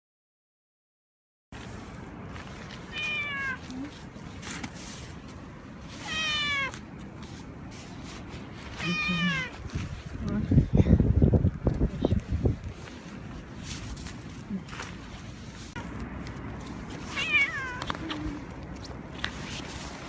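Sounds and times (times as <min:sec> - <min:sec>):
cat meowing: 0:02.9 - 0:03.8, 0:06.0 - 0:06.8, 0:08.8 - 0:09.6, 0:17.0 - 0:18.4.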